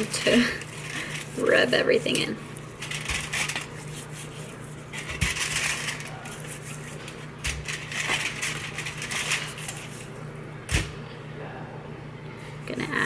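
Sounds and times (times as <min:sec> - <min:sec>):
hands rubbing potatoes: 0:00.0 - 0:05.1.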